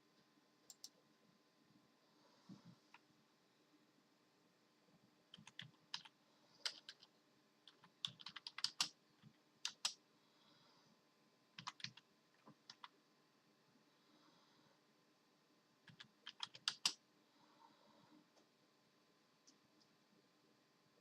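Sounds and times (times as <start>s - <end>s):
keyboard keys clicking: 5.3s - 7.1s, 7.7s - 8.9s, 9.6s - 10.0s, 11.6s - 12.9s, 15.9s - 17.0s.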